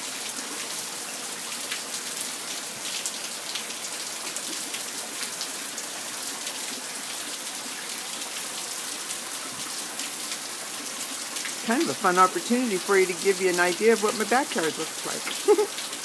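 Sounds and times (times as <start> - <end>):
heavy rain pattering: 0.0 - 16.0.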